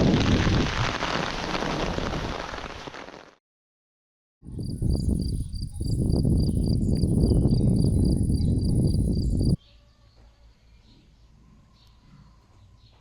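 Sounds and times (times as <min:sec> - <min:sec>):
crickets chirping: 0:04.5 - 0:09.6.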